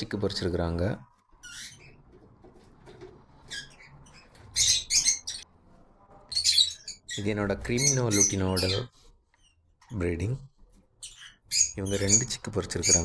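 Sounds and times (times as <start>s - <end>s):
lovebirds shrill chirps: 1.3s - 2.1s, 3.4s - 5.4s, 6.3s - 9.6s, 11.0s - 13.0s.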